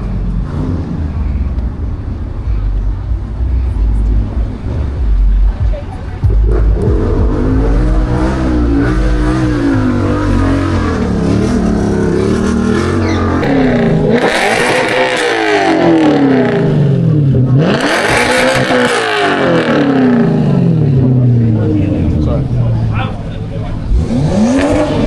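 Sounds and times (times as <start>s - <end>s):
loud rushing noise: 0.0s - 23.1s
car engine revving: 0.0s - 25.0s.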